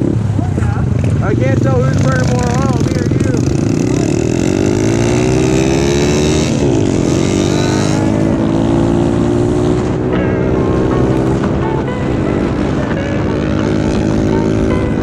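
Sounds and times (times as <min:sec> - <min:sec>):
small motorbike engine revving: 0:00.8 - 0:15.0.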